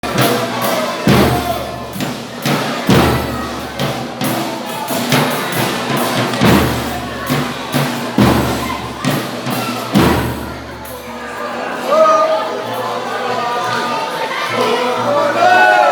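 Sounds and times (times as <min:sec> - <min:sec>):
steady drum beat: 0:00.0 - 0:11.3.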